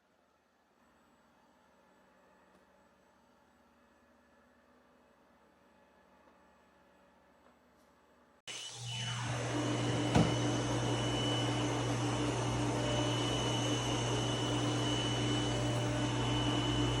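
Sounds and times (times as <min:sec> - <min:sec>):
robot vacuum cleaner running: 0:08.5 - 0:17.0.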